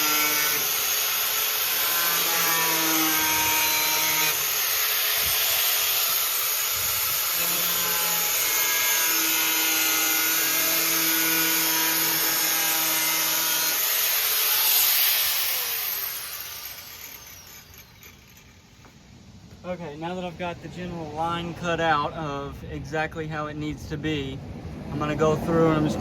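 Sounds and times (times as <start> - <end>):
angle grinder cutting metal: 0.0 - 18.7.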